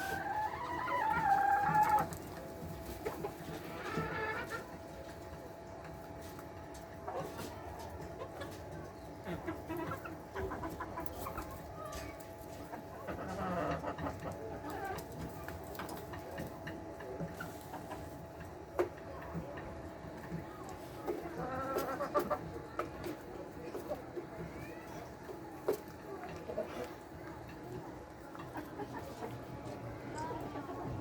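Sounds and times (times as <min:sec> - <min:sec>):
hens clucking: 0:00.0 - 0:31.0.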